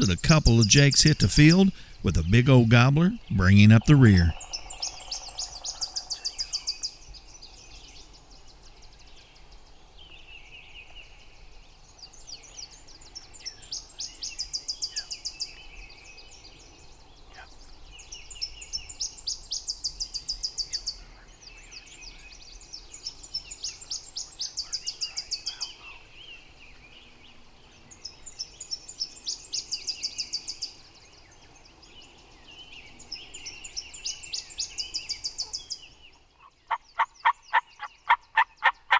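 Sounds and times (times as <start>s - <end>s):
low buzzy bird calls: 11.9s - 38.9s.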